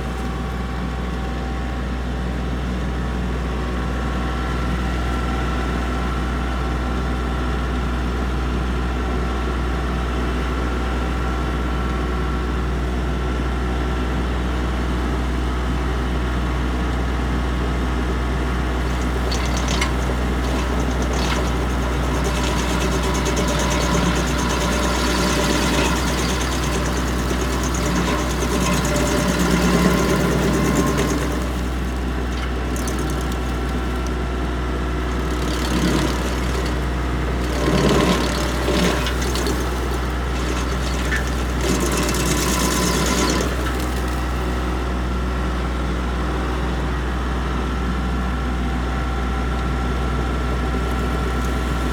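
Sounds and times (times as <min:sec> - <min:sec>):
tractor engine running: 0:12.8 - 0:47.6, 0:48.2 - 0:51.9
stump grinder cracking and grinding: 0:17.6 - 0:45.7, 0:49.6 - 0:51.9.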